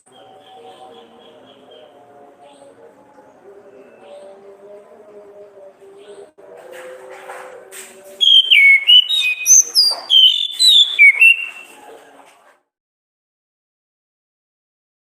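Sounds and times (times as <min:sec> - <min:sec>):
thrush singing whistled notes: 0:08.2 - 0:11.7.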